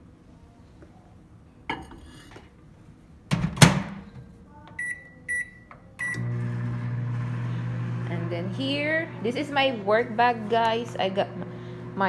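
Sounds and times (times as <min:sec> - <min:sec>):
microwave door shutting: 0:03.3 - 0:04.2.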